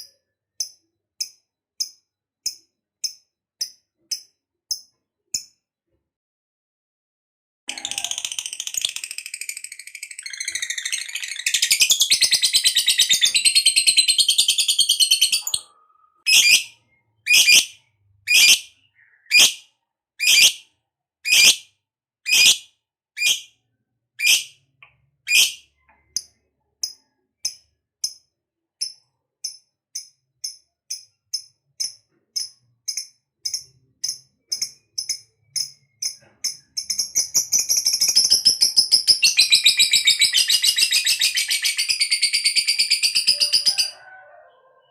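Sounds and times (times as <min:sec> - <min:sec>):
lovebird trilling: 0:07.7 - 0:16.7, 0:17.3 - 0:19.6, 0:20.2 - 0:20.6, 0:21.3 - 0:21.6, 0:22.3 - 0:22.6, 0:23.2 - 0:23.5, 0:24.2 - 0:24.5, 0:25.3 - 0:25.6
bird chirps: 0:07.7 - 0:21.6, 0:22.3 - 0:22.6, 0:23.2 - 0:28.2, 0:28.8 - 0:44.9.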